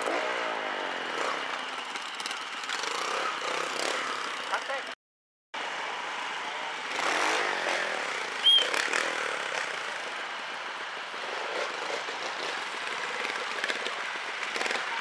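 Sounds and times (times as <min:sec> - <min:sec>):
motorcycle engine revving: 0:00.0 - 0:04.9, 0:06.8 - 0:15.0
short high squeak: 0:08.4 - 0:08.8.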